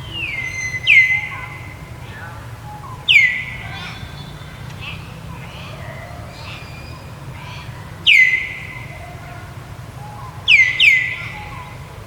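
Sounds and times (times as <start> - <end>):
shrill whistle-like animal calls: 0.0 - 5.0, 8.1 - 8.8, 10.0 - 11.8.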